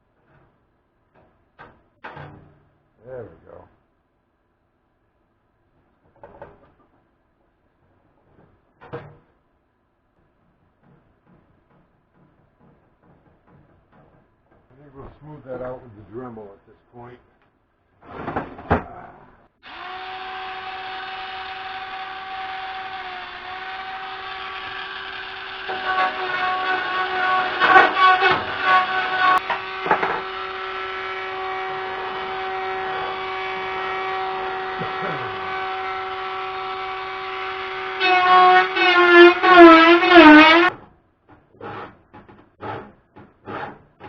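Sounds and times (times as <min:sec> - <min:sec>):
rotary tool grinding metal: 0:19.8 - 0:40.7.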